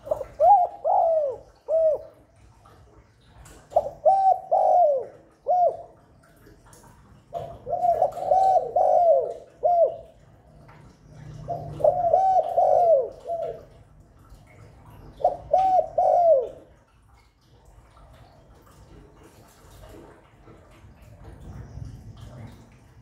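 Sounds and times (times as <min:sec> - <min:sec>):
dove cooing: 0:00.0 - 0:02.4, 0:03.5 - 0:06.1, 0:07.3 - 0:10.4, 0:11.2 - 0:13.8, 0:15.1 - 0:16.8.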